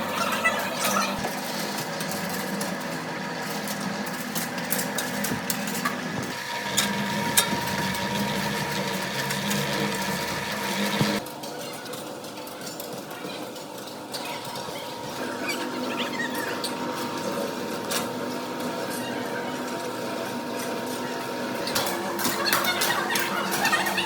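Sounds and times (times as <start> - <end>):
small motor humming: 0.0 - 11.2.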